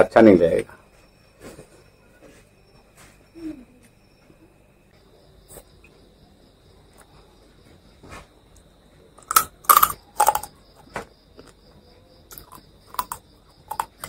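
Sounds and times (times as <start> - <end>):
person chewing crunchy food: 9.2 - 10.6, 12.3 - 14.0.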